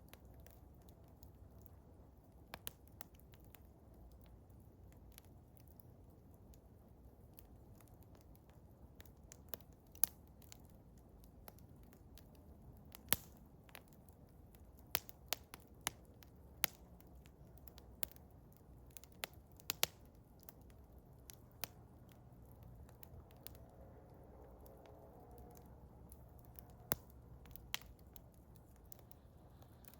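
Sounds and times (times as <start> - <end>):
wood fire crackling: 0.0 - 29.9
sharp pops of fire: 11.4 - 14.0, 18.9 - 23.6, 24.6 - 29.9
low rumble: 23.0 - 29.9.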